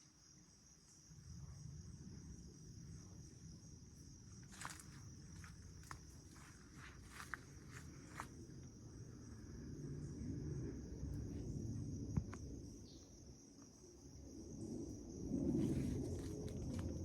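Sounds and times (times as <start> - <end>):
crickets trilling: 0.0 - 17.0
low rumble: 14.4 - 17.0.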